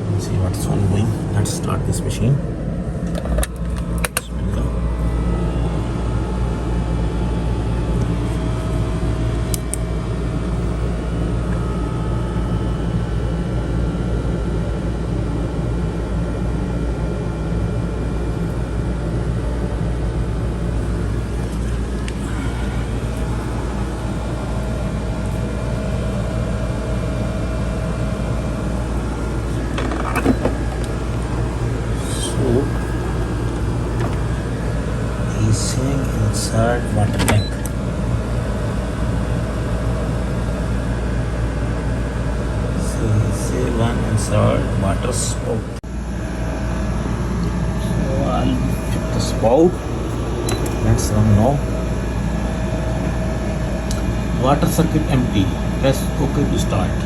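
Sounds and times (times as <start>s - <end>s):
water pump buzzing: 20.6s - 40.6s.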